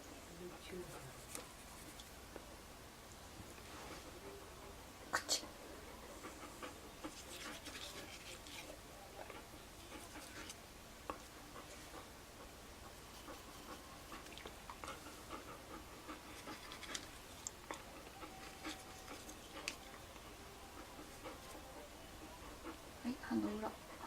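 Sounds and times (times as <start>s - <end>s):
dog breathing: 4.9s - 8.5s, 11.1s - 24.0s
toothbrush scratchy brushing: 7.0s - 8.8s, 16.1s - 17.4s, 18.2s - 20.0s.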